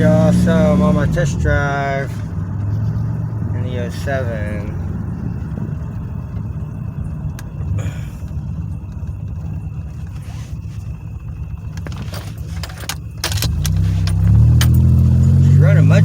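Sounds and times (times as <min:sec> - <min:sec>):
car engine and road noise: 0:00.0 - 0:16.0
faint ticks: 0:07.2 - 0:12.0.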